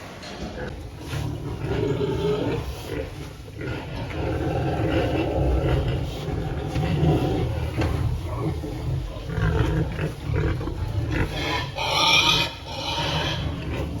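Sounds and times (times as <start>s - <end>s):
pigs grunting: 0.0s - 14.0s
pig squealing: 11.2s - 13.8s.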